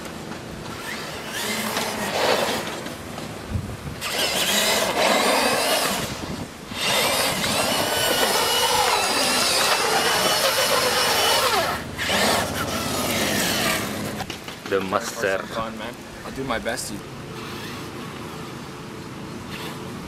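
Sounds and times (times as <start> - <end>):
radio-controlled car motor whining: 0.7 - 2.9, 4.0 - 14.3, 17.4 - 18.4.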